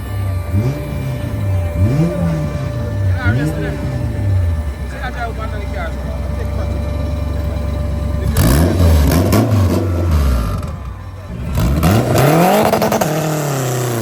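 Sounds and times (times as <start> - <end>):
car engine revving hard: 0.0 - 14.0.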